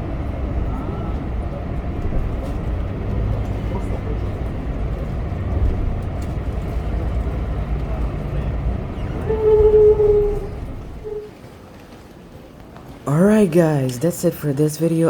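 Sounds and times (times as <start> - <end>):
low vehicle rumble: 0.0 - 11.6
horn-like tone: 9.0 - 11.3.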